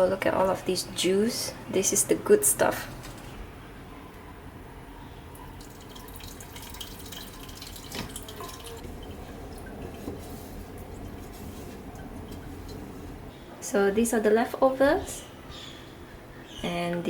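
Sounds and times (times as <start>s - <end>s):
sauce dripping through a sieve: 5.4s - 13.2s.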